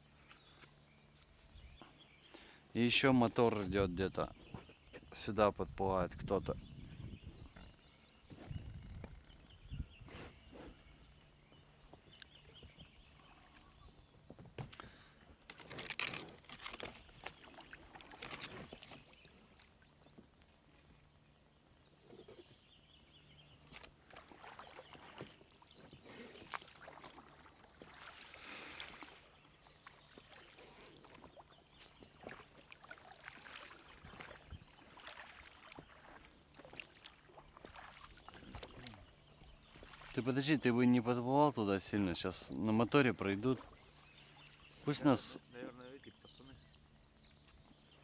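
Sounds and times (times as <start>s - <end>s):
oars splashing in water: 7.4s - 21.0s, 21.9s - 48.0s
distant boat motor hum: 16.3s - 48.0s.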